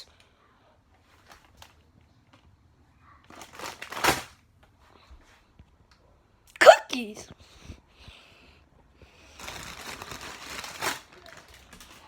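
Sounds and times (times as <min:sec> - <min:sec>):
snack packaging crinkling: 0:03.3 - 0:04.4, 0:09.2 - 0:12.0.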